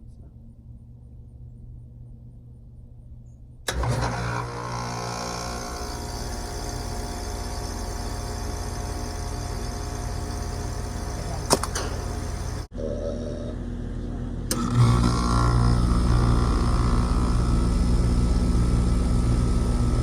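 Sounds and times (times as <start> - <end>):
heat pump hum and whir: 0.0 - 20.0
sharp click: 11.4 - 12.2.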